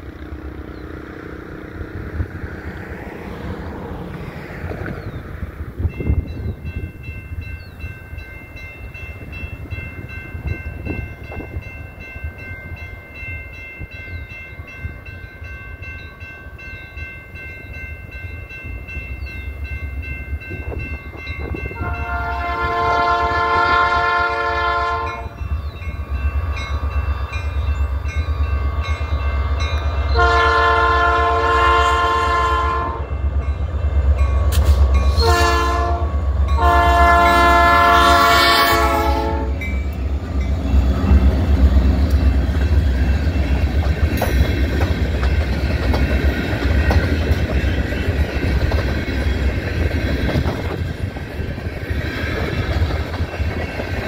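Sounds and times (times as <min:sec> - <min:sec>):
locomotive engines rumbling: 0:00.0 - 0:54.0
train air horn blasts: 0:21.7 - 0:25.4, 0:28.6 - 0:33.2, 0:34.5 - 0:39.7
train wheels clattering on rails: 0:33.2 - 0:35.6, 0:36.2 - 0:54.0.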